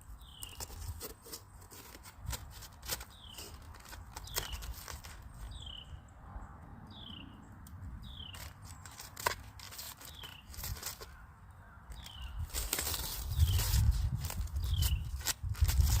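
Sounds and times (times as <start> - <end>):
rustling: 0.0 - 5.7, 8.2 - 11.2, 11.9 - 16.0.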